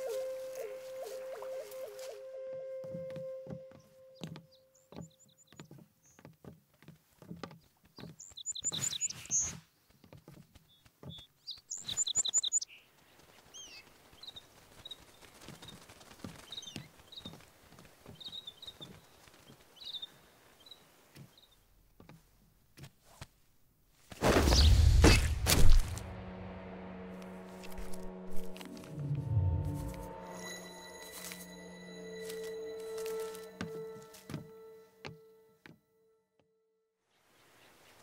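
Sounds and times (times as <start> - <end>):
birds chirping: 7.5 - 15.8, 18.0 - 21.7.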